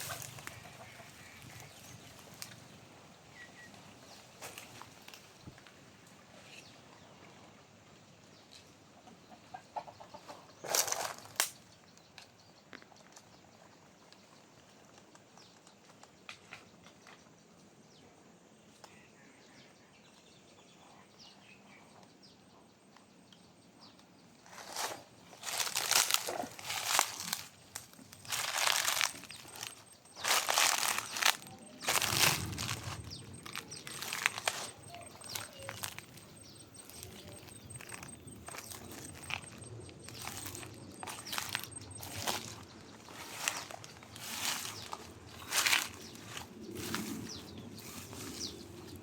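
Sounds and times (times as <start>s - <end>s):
dry leaves rustling and crunching: 0.0s - 2.7s, 10.6s - 11.5s, 24.5s - 49.0s.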